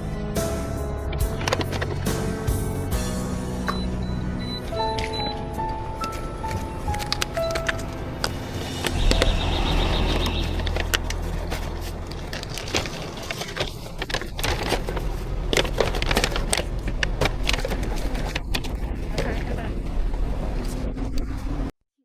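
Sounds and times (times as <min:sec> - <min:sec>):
utensils clinking and knocking: 0:01.2 - 0:02.3, 0:04.7 - 0:19.4.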